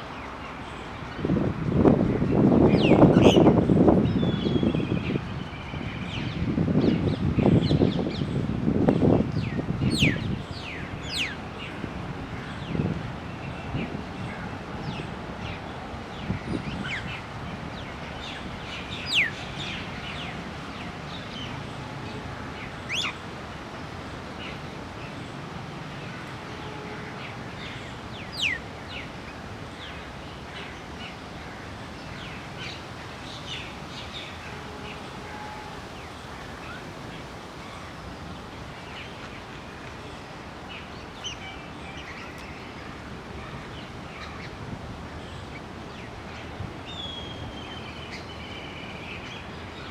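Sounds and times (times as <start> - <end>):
outdoor background noise: 0.0 - 49.9
wild birds chirping and calling: 18.2 - 20.3.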